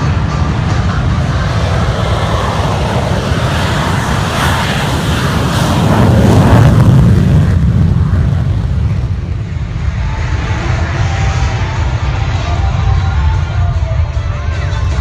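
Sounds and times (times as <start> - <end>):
fighter jet engine roaring: 0.0 - 15.0.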